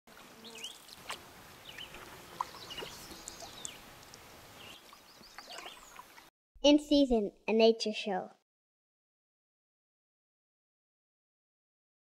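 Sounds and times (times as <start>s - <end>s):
faint birds chirping and whistling: 1.6s - 3.9s, 4.6s - 6.2s.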